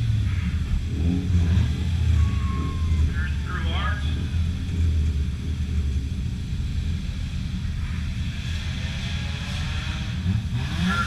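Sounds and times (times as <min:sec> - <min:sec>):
race car engines rumbling: 0:00.0 - 0:11.0.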